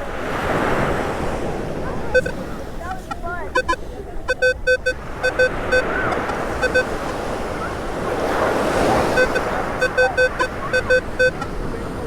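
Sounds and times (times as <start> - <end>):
surf washing in: 0.0 - 12.0
metal detector beeping: 2.2 - 7.2, 9.0 - 11.5.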